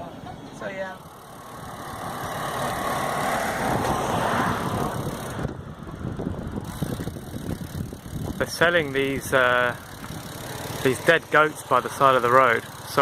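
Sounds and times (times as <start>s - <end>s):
vehicle passing: 0.0s - 13.0s
wind on microphone: 1.6s - 10.3s.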